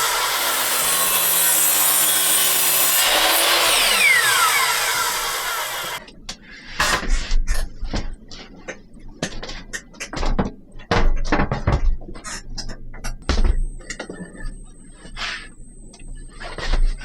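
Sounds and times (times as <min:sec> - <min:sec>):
wood scraping: 0:00.0 - 0:06.0.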